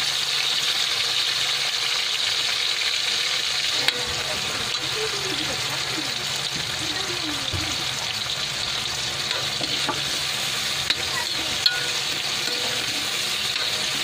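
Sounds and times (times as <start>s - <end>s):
vegetables sizzling in a wok: 0.0s - 14.0s
metal spoon scraping pan: 8.1s - 14.0s
spoon clinking on wok: 10.8s - 14.0s.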